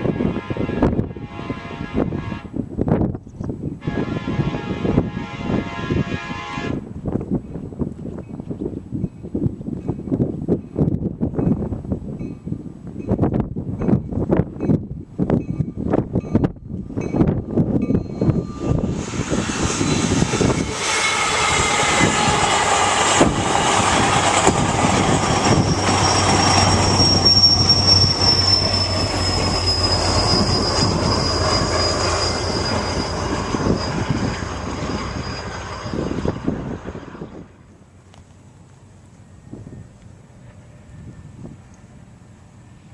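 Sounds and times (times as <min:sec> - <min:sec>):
train wheels rumbling on rails: 0:04.5 - 0:42.9
high wheel squeal: 0:17.8 - 0:37.5.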